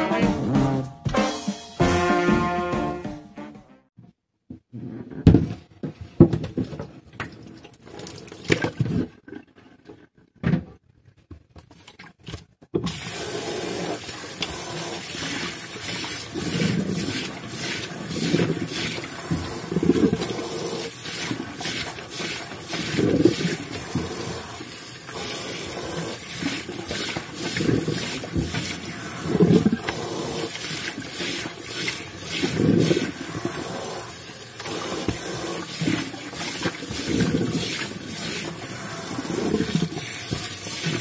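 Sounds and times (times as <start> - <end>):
tap water running: 6.3 - 9.1, 12.8 - 41.0.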